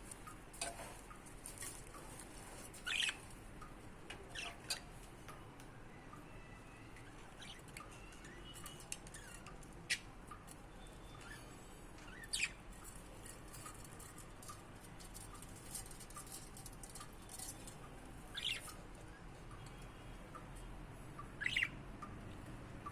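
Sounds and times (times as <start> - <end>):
budgerigar chirping: 21.2 - 21.8.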